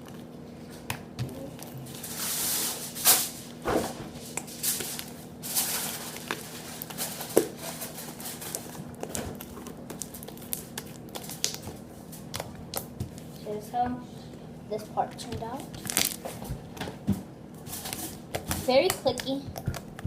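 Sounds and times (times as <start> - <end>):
hands kneading sticky slime: 4.3 - 13.6.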